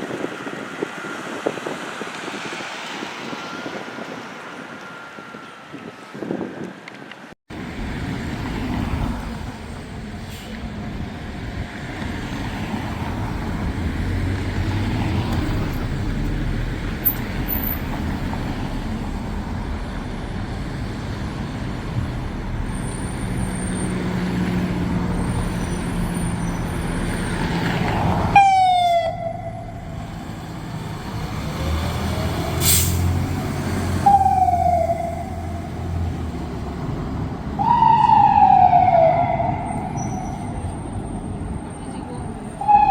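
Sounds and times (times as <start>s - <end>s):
road traffic: 0.0s - 42.9s
fire engine siren wailing: 25.2s - 32.8s, 33.4s - 36.2s, 37.5s - 40.6s, 42.6s - 42.9s.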